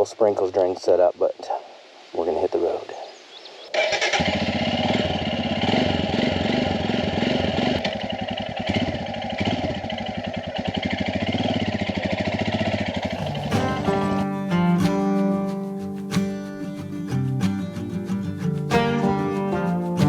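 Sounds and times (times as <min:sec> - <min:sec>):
motorcycle engine running: 0:03.8 - 0:14.4
acoustic guitar music: 0:13.0 - 0:20.0.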